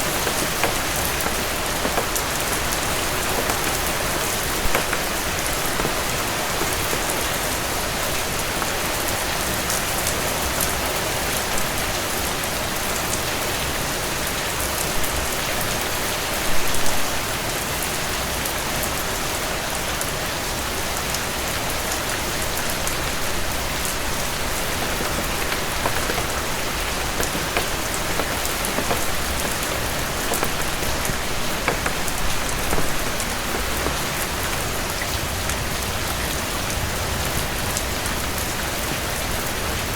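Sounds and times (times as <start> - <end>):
fireplace crackling: 0.0 - 9.0, 23.6 - 35.1
heavy rain on porch: 0.0 - 39.9.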